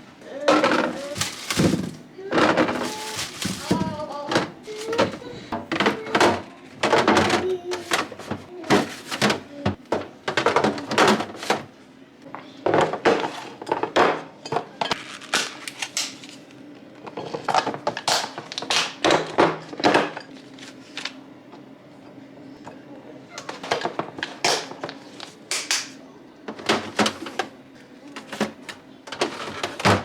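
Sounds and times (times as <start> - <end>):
packages knocking on fridge shelves: 0.3 - 11.8, 12.6 - 15.6, 17.2 - 20.9, 23.4 - 30.0.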